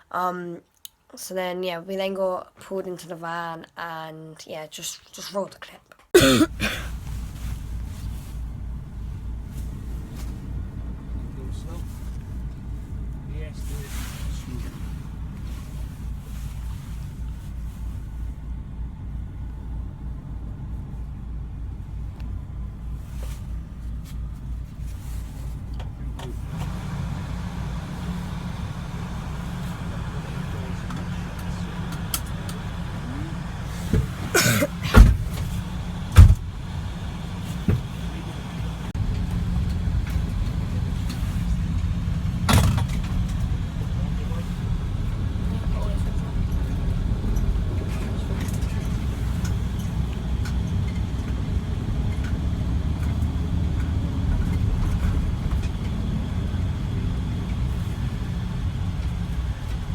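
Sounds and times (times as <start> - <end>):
van engine and road rumble: 6.1 - 59.9
loud knocks: 36.2 - 36.6.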